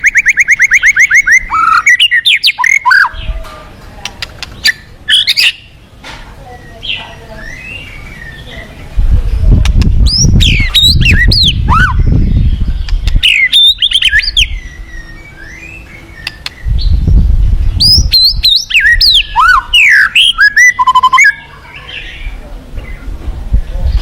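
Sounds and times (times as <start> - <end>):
low rumbling rush: 8.4 - 14.9, 16.6 - 19.4
bird singing whistles and clicks: 12.8 - 16.7.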